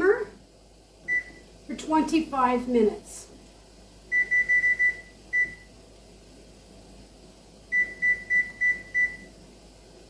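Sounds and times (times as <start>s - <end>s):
digital timer beeping: 4.1s - 5.7s, 7.7s - 9.3s.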